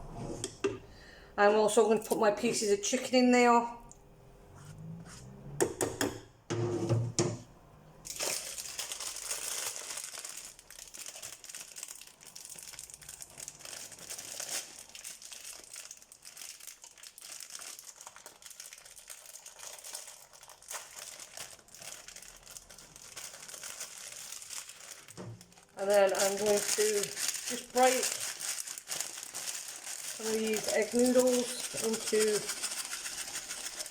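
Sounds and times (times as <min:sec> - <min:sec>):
packaging crinkling and rustling: 0:08.0 - 0:33.9.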